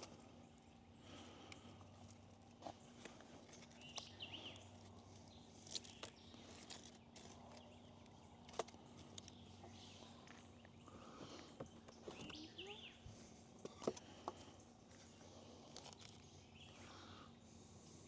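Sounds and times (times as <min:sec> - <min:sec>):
faint bird chirp: 0:08.9 - 0:17.5.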